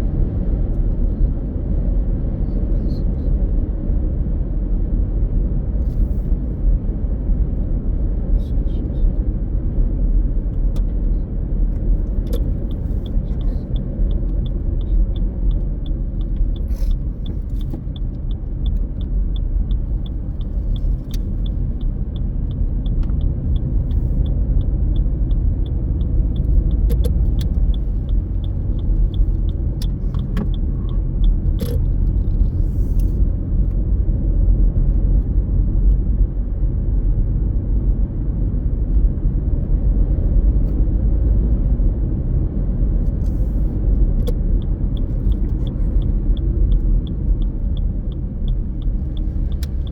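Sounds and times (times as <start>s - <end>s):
car engine and tyres rumbling: 0.0s - 49.9s
light regular ticking: 12.2s - 33.1s, 44.6s - 49.9s.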